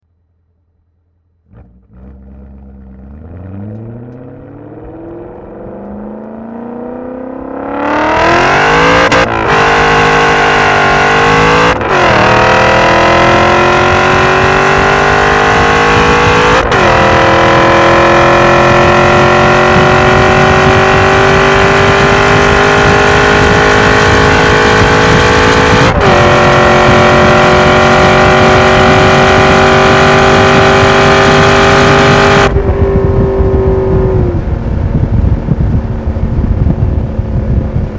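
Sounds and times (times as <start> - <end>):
car exhaust accelerating hard: 0.8 - 37.9.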